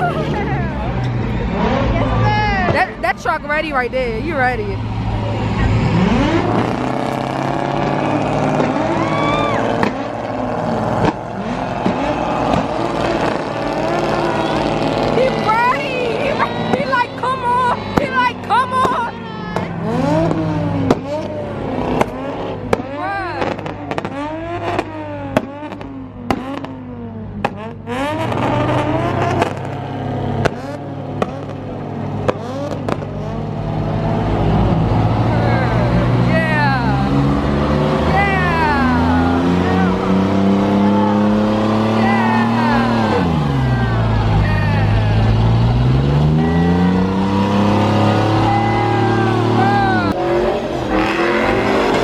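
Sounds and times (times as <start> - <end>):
car engine revving hard: 0.0 - 52.0
crowd voices: 0.0 - 52.0
sharp cracks: 27.4 - 33.2
second steady engine note: 42.2 - 52.0.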